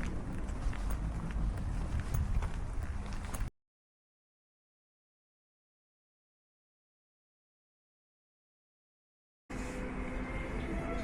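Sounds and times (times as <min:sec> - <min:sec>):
footsteps: 0:00.0 - 0:03.5
outdoor background noise: 0:00.0 - 0:03.5, 0:09.5 - 0:11.0.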